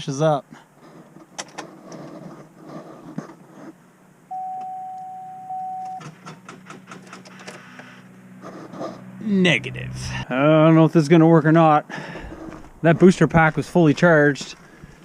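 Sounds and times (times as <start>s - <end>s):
electronic warning chime: 4.3s - 6.0s.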